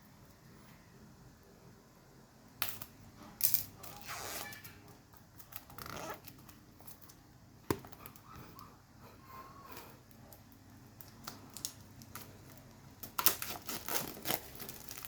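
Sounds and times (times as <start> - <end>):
packaging rustling and crinkling: 11.2 - 15.0.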